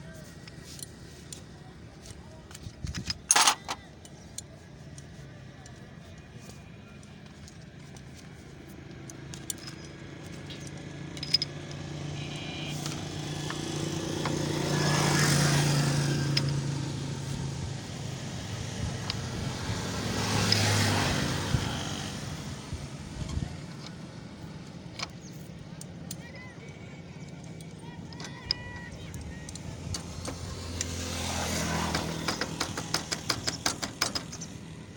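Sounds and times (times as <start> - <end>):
motor vehicles passing: 0.0 - 34.9
small clicks and knocks: 0.4 - 12.0, 23.2 - 34.7.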